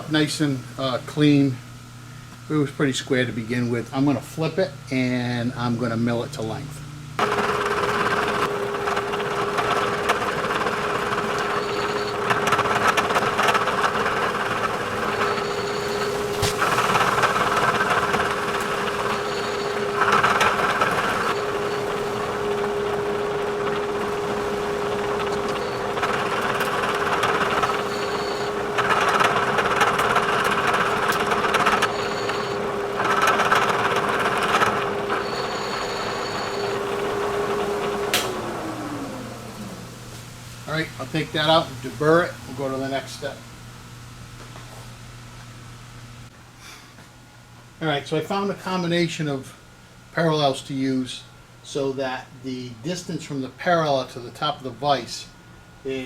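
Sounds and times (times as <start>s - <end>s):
milling machine humming: 0.0s - 46.3s
cutter milling metal: 7.2s - 39.8s.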